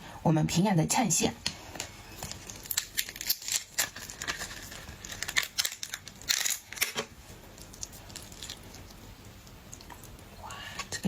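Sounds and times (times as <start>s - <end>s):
shellfish shells cracking by hand: 2.2s - 10.2s.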